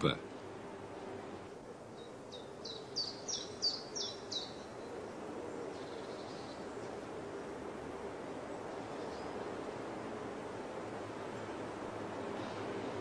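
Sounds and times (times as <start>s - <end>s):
small bird chirping: 1.9s - 4.9s.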